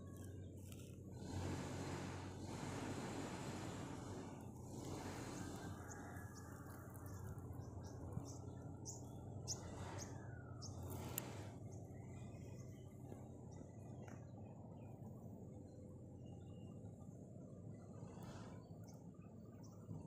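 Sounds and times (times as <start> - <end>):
small birds chirping: 0.0 - 1.8, 3.6 - 20.0
faint low hum: 0.0 - 20.0.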